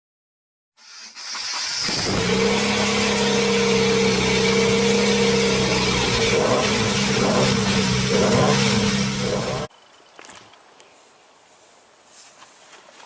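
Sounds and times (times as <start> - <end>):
car engine running: 1.4 - 9.7.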